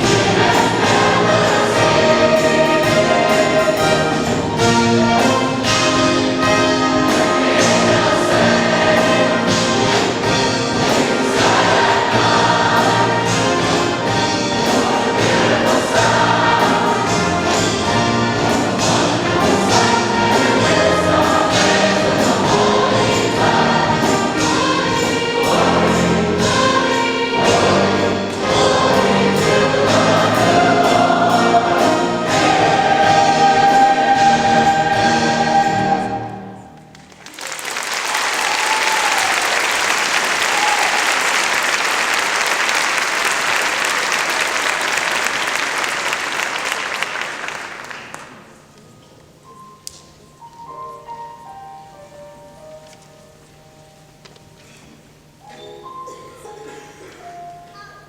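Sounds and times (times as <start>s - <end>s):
big band with brass: 0.0s - 36.6s
choir singing: 0.0s - 36.9s
audience applauding: 36.8s - 48.6s.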